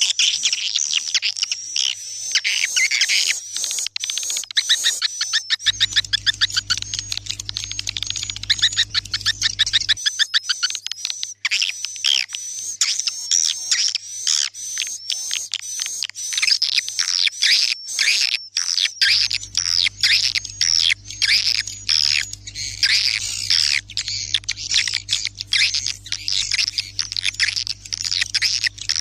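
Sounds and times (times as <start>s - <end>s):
steady low hum: 5.7s - 10.0s, 19.1s - 29.0s
swiftlets twittering: 5.7s - 10.0s, 19.0s - 29.0s.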